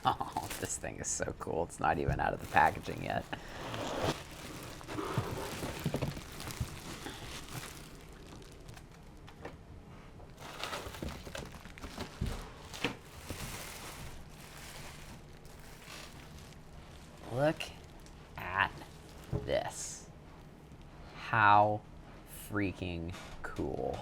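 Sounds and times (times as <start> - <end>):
packaging rustling and crinkling: 0.0 - 1.2, 1.8 - 9.6, 10.2 - 19.4.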